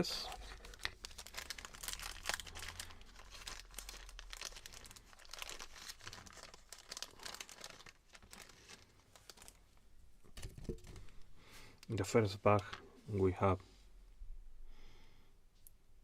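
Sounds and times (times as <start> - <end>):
bag crinkling: 0.3 - 9.7.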